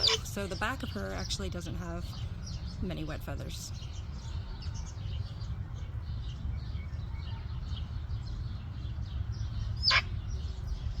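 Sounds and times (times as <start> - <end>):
small birds chirping: 0.0 - 11.0
loud sweeping bird call: 3.7 - 11.0.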